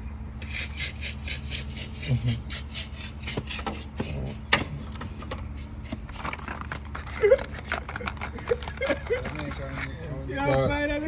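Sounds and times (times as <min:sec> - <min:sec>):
steady low hum: 0:00.0 - 0:11.0
hand tools clicking and knocking: 0:03.2 - 0:10.7.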